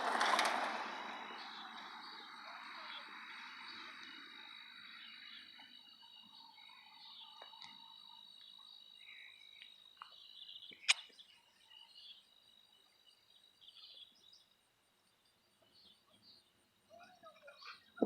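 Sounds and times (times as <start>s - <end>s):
frogs and insects trilling: 0.6s - 18.0s
sharp click: 10.8s - 11.1s.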